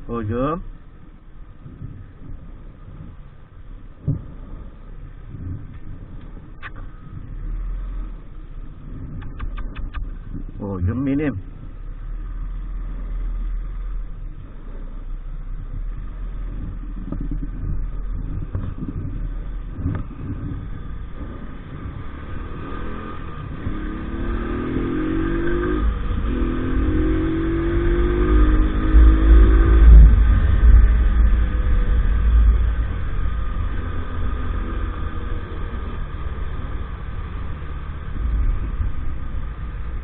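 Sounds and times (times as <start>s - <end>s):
wind rumble on microphone: 0.0s - 40.0s
small motorbike engine accelerating: 16.5s - 40.0s.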